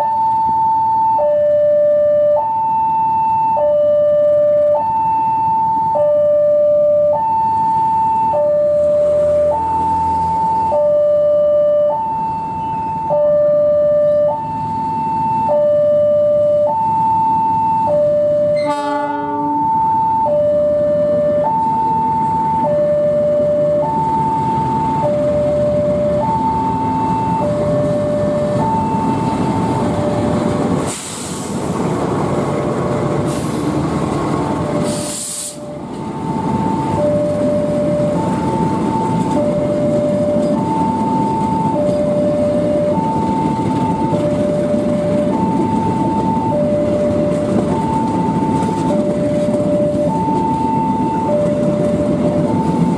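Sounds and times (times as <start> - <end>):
two-tone crossing alarm: 0.0 - 30.5, 34.8 - 52.9
train rumbling past: 8.6 - 13.0, 18.3 - 52.9
loud hissing blasts: 30.8 - 32.0, 34.8 - 35.7.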